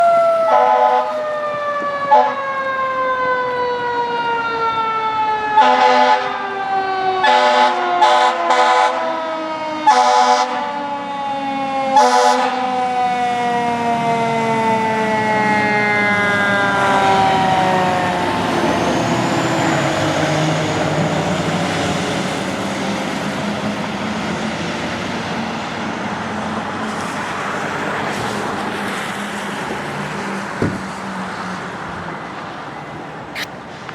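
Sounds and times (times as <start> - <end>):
fire engine siren wailing: 0.0 - 33.9
truck engine and tyre noise: 0.0 - 33.9
air horn blasts: 0.5 - 1.2, 2.1 - 2.4, 5.6 - 6.4, 7.2 - 9.1, 9.8 - 10.7, 12.0 - 12.7.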